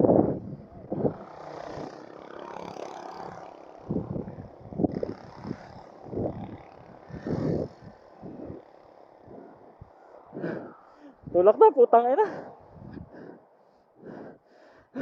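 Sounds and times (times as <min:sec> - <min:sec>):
wind on microphone: 0:00.0 - 0:01.9, 0:03.8 - 0:08.6, 0:12.6 - 0:13.3
heavy labored breathing: 0:07.0 - 0:11.4, 0:12.2 - 0:15.0.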